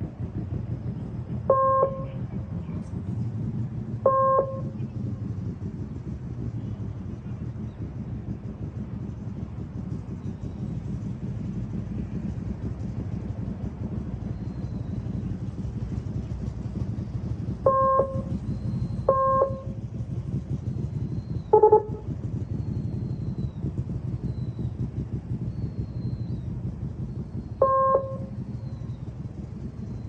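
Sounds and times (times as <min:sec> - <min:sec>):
motorcycle engine rumbling: 0:00.0 - 0:30.0
short beeps: 0:01.5 - 0:02.1, 0:04.1 - 0:04.8, 0:17.7 - 0:19.8, 0:21.5 - 0:22.1, 0:27.6 - 0:28.4.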